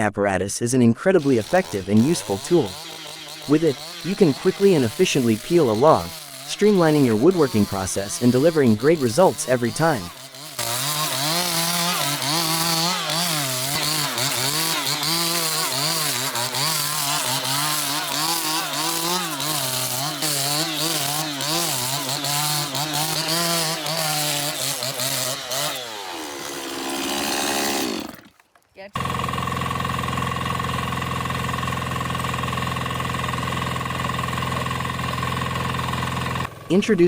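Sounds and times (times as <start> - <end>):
log planing tool rasping: 1.2 - 28.3.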